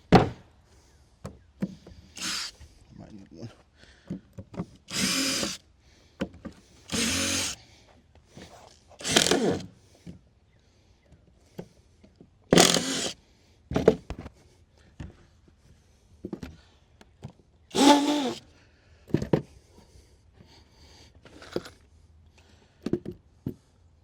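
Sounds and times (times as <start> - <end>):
power drill driving screws: 2.2 - 2.6, 4.9 - 5.6, 6.9 - 7.6, 9.0 - 9.7, 12.6 - 13.2, 17.7 - 18.4.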